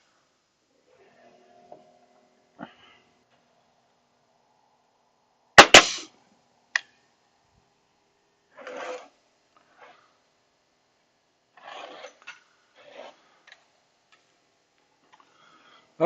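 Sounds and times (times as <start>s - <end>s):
nail gun firing: 5.6s - 6.1s.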